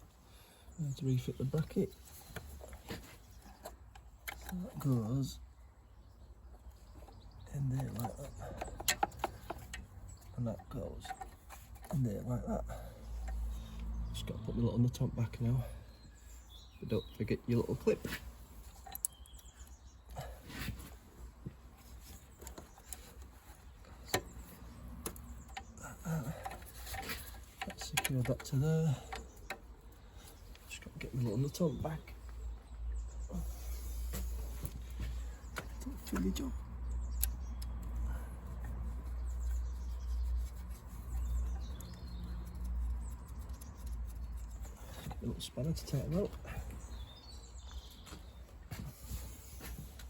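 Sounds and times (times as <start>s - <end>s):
light clicks and taps of parts: 1.4s - 5.1s, 6.5s - 14.0s, 18.6s - 20.2s, 21.4s - 31.2s, 34.0s - 46.8s
nut being threaded clicks: 24.1s - 25.7s.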